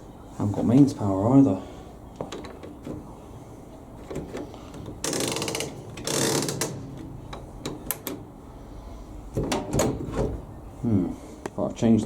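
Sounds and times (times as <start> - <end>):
rapid ratcheting clicks: 5.0 - 6.8.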